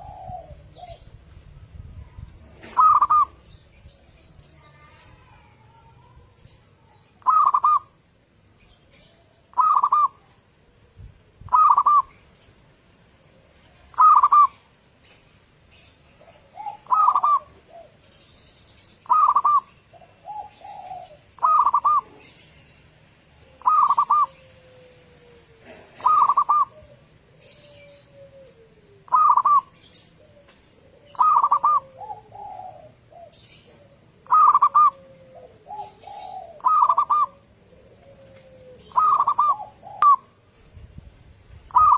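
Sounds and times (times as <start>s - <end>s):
soft falling coos: 0.0s - 0.8s, 23.4s - 39.9s
dove cooing song: 0.0s - 8.0s, 8.6s - 41.9s.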